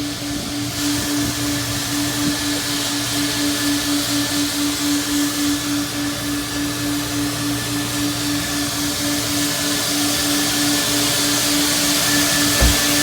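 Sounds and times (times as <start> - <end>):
motor whooshing rush: 12.6 - 13.0.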